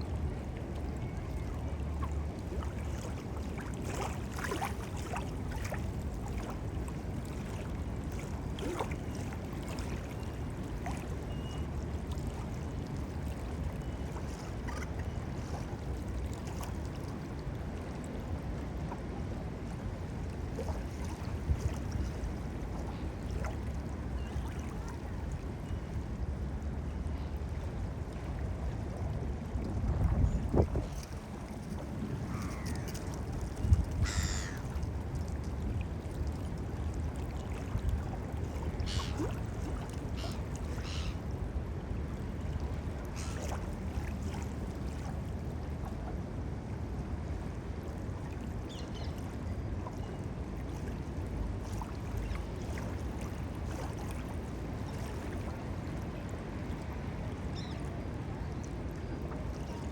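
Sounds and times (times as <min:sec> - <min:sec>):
small waves lapping: 0:00.0 - 0:59.9
faint ticks and splashes: 0:00.8 - 0:17.9, 0:29.5 - 0:41.3, 0:48.2 - 0:57.0
wind buffeting microphone: 0:29.4 - 0:34.5.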